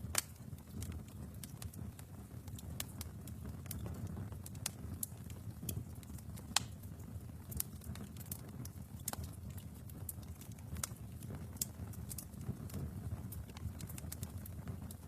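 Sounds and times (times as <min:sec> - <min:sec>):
fire popping and snapping: 0:00.0 - 0:15.0
low rumble of flames: 0:00.0 - 0:15.0.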